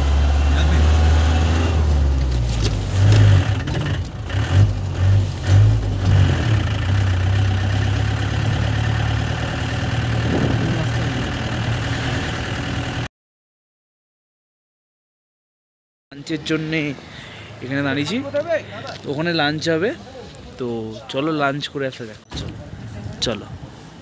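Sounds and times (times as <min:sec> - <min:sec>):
car engine drone: 0:00.0 - 0:13.1
road noise inside car: 0:00.0 - 0:13.1.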